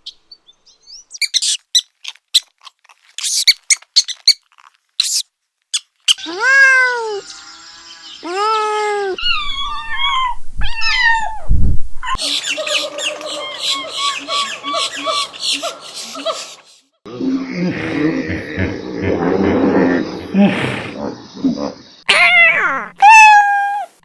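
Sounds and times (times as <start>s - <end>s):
small animals squeaking and chirping: 1.1s - 11.2s, 12.1s - 16.6s, 22.1s - 24.0s
animal cries: 6.1s - 11.3s, 22.1s - 24.0s.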